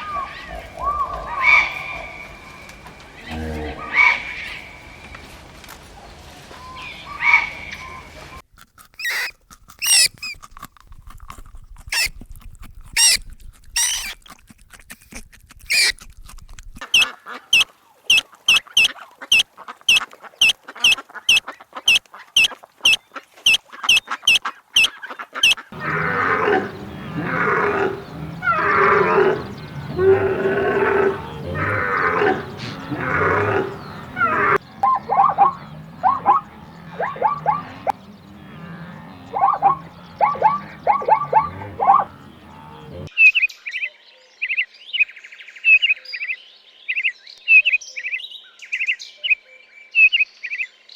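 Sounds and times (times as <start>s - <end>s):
high animal calls: 0.0s - 2.4s, 3.2s - 4.8s, 9.0s - 10.4s, 11.9s - 12.1s, 13.0s - 13.2s, 13.8s - 14.2s, 15.7s - 15.9s, 16.9s - 43.1s
deep rough grunting calls: 3.2s - 4.5s, 25.4s - 43.1s
short high animal calls: 9.0s - 10.4s, 13.8s - 14.1s, 15.7s - 15.9s, 21.9s - 43.1s.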